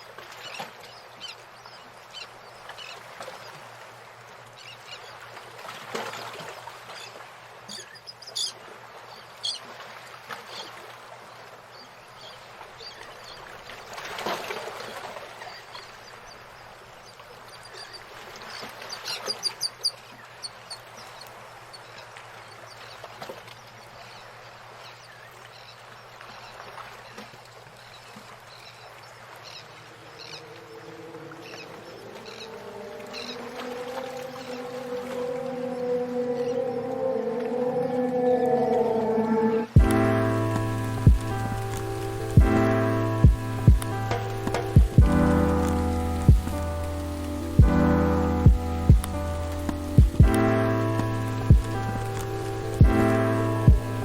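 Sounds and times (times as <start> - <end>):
birds chirping: 28.6 - 54.0
steady rushing hiss: 39.8 - 54.0.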